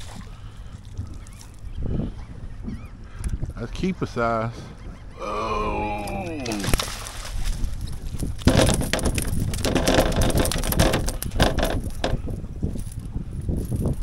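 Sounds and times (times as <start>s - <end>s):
wind noise: 0.0s - 14.0s
knocking and clattering on boat: 7.7s - 13.0s.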